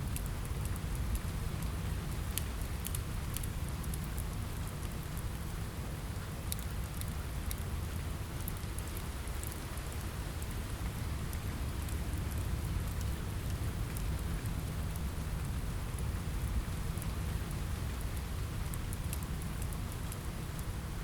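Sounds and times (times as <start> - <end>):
rain falling on a window: 0.0 - 21.0
small sharp ticks: 2.3 - 5.3, 6.5 - 7.7.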